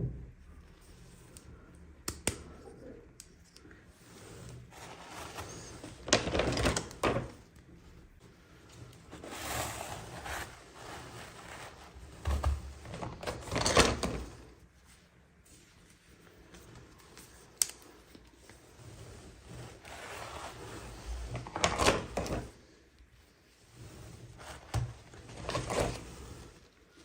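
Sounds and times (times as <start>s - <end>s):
packaging rustling and crinkling: 4.6s - 7.5s, 24.4s - 27.0s.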